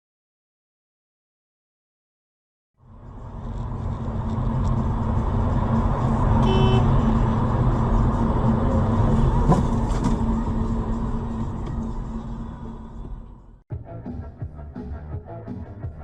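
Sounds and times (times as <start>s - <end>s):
vehicle engine and road rumble: 2.8s - 13.6s.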